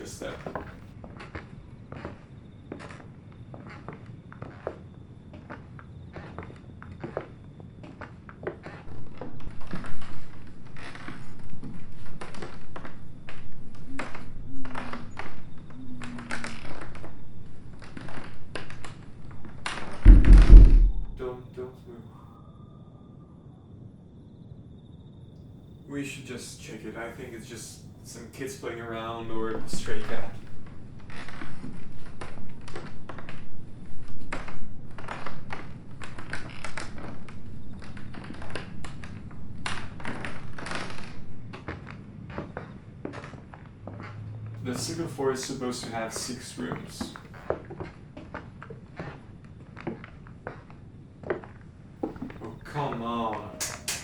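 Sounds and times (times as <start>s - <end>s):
stair creaks: 20.0s - 21.3s, 39.7s - 45.0s, 47.0s - 54.0s
footsteps on stairs: 20.1s - 21.3s, 51.3s - 54.0s
heavy low thud: 20.1s - 21.4s.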